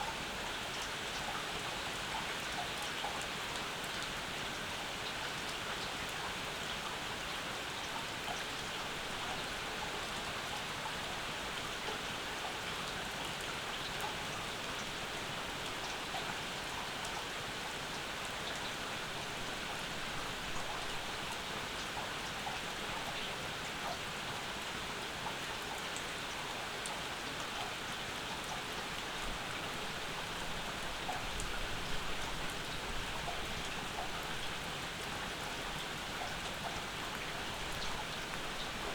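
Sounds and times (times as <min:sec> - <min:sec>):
rain falling: 0:00.1 - 0:38.9.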